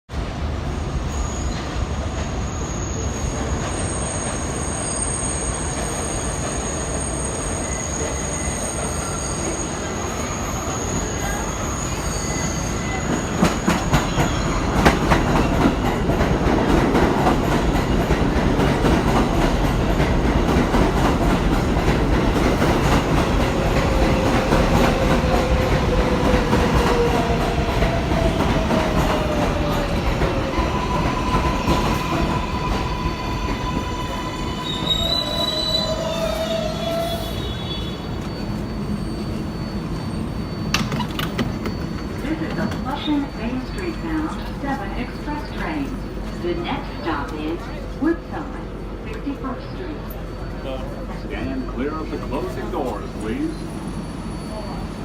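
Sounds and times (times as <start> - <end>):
subway train rumble: 0.1 - 55.0
high wheel squeal: 2.4 - 14.9, 28.3 - 44.4, 50.0 - 55.0.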